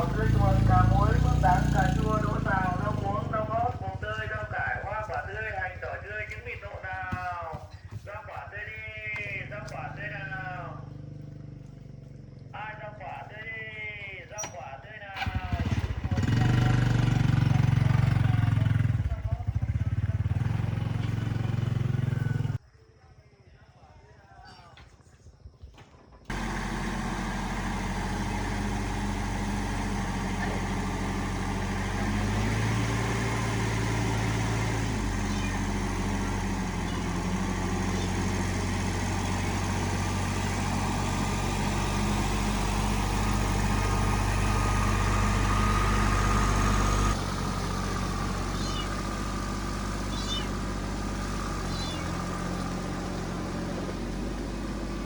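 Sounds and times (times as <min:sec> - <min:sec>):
motor humming: 0:26.3 - 0:55.0.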